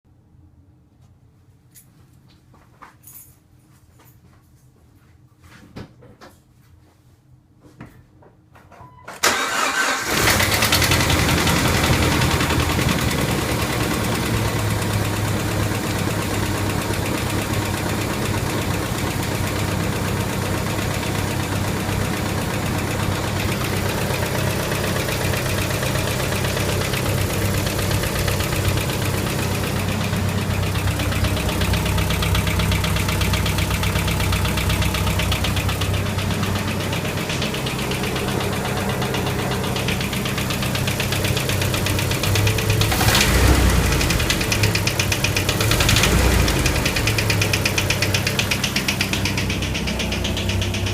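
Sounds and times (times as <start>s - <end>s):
car engine starting and idling: 9.1s - 50.9s
engine clacking: 9.2s - 50.9s.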